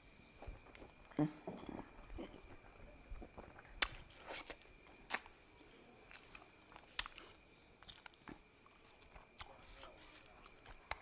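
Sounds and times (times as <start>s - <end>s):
crisp mouth clicks and smacks: 2.0s - 5.3s, 6.1s - 11.0s
person chewing fish: 6.1s - 11.0s.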